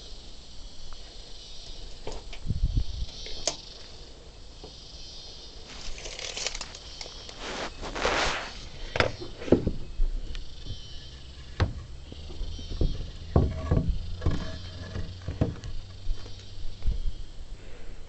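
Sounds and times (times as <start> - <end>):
wooden knocks and clatter: 11.5 - 16.4.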